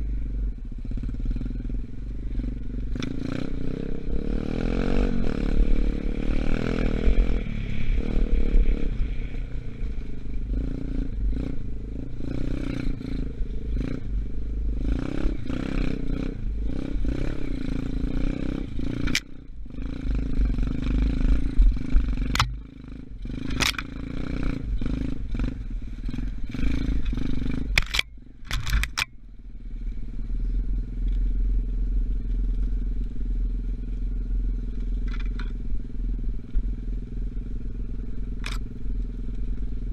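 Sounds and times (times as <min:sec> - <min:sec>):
dirt bike engine running: 0:00.0 - 0:39.9
sharp clicks and knocks: 0:22.2 - 0:22.6, 0:23.4 - 0:23.9, 0:27.0 - 0:29.2, 0:34.8 - 0:35.6, 0:38.4 - 0:38.7.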